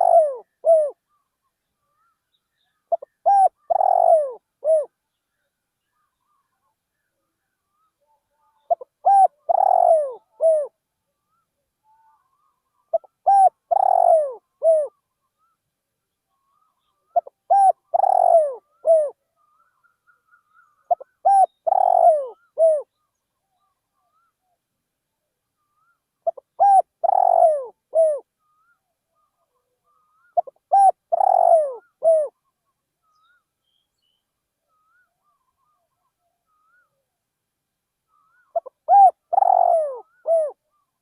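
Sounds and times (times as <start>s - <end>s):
dove cooing: 0.0s - 1.0s, 2.9s - 4.9s, 8.6s - 10.7s, 12.0s - 15.0s, 16.5s - 22.9s, 26.2s - 28.3s, 29.9s - 32.4s, 38.2s - 40.6s
faint thin bird calls: 0.0s - 24.6s, 25.5s - 37.2s, 38.0s - 41.0s.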